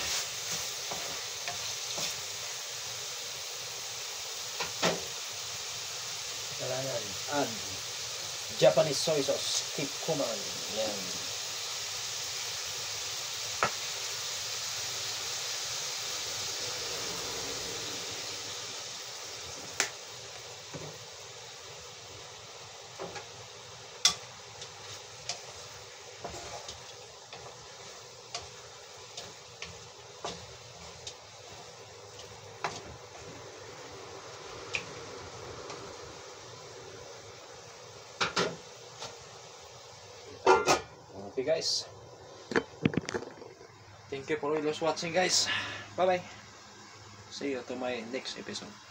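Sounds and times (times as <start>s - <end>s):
food sizzling in a wok: 0.0s - 48.9s
utensil scraping a pan: 24.8s - 31.1s.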